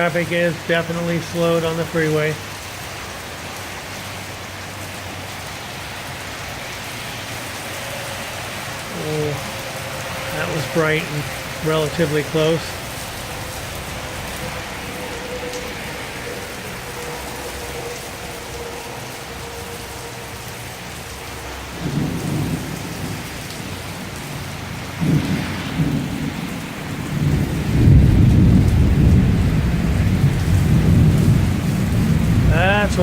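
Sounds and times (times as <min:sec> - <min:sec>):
heavy rain falling: 0:00.0 - 0:33.0
rolling thunder: 0:21.6 - 0:33.0.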